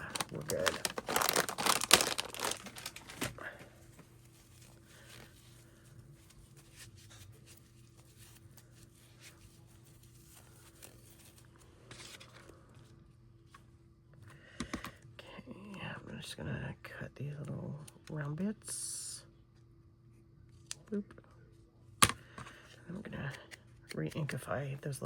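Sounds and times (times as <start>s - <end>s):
paper rustling: 0.0s - 12.8s
low steady hum: 0.0s - 25.0s.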